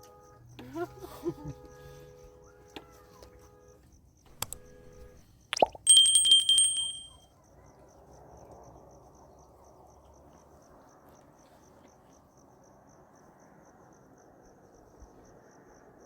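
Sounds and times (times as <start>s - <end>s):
faint crickets chirping: 0.0s - 16.0s
low background hiss: 4.3s - 7.1s.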